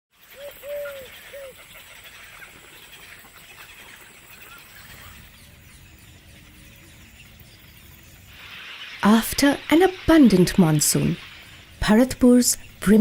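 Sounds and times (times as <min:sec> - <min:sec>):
birds calling and chattering: 0:00.2 - 0:09.2
short hooting bird calls: 0:00.4 - 0:01.7.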